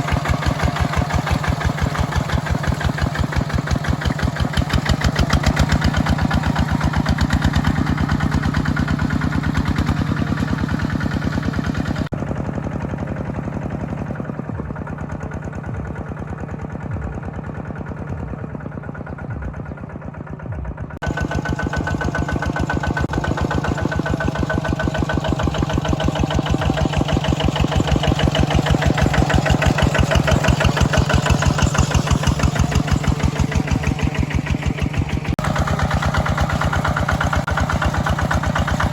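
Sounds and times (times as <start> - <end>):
mini tractor engine running: 0.0 - 38.9.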